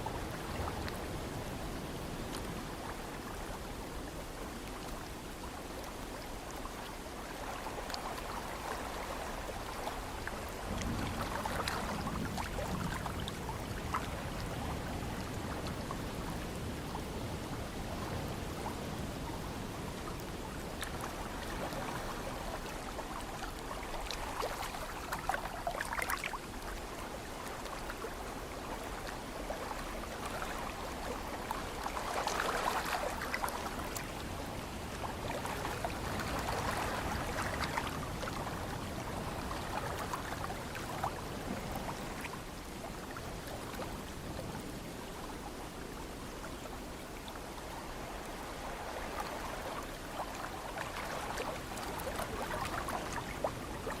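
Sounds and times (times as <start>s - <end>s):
ocean waves washing in: 0.0s - 54.0s.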